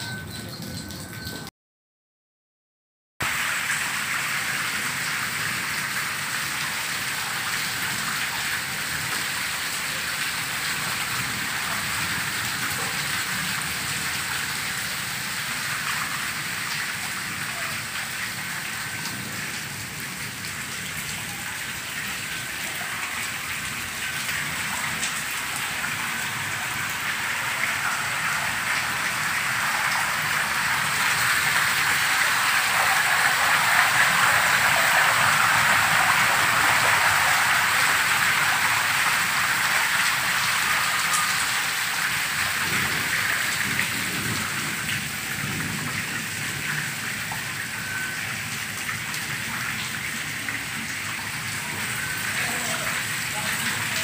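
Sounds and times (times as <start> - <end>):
water running down concrete steps: 0.0 - 1.5, 3.2 - 54.0
heavy rain falling: 3.2 - 54.0.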